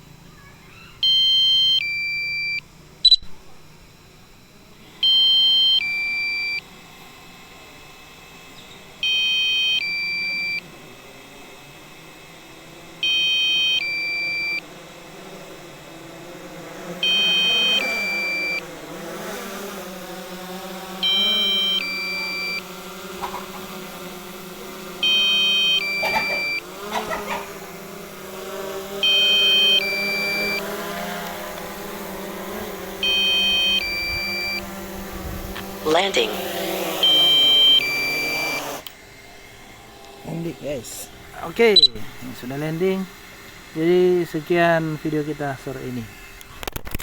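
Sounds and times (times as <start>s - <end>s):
drone propellers humming: 0.0s - 47.0s
two-part electronic warning beep: 1.0s - 3.3s, 4.9s - 6.7s, 9.0s - 10.6s, 13.0s - 14.7s, 17.0s - 18.7s, 21.0s - 23.3s, 25.0s - 26.7s, 29.0s - 30.7s, 33.0s - 34.7s, 36.9s - 38.8s, 41.7s - 42.0s.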